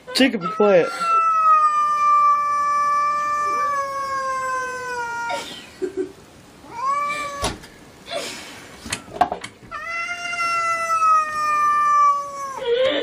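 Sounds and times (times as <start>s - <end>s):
cat yowling: 0.4s - 5.7s, 6.6s - 7.6s, 9.7s - 12.7s.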